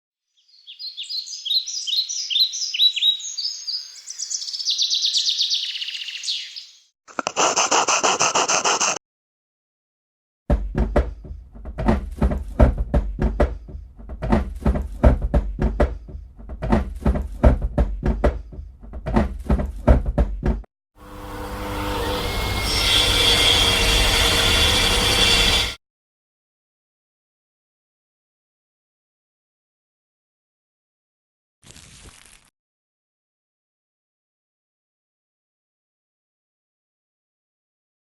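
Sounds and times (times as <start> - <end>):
rainforest chirping calls: 0.4 - 6.8
saw cutting wood: 7.1 - 9.0, 21.0 - 25.8.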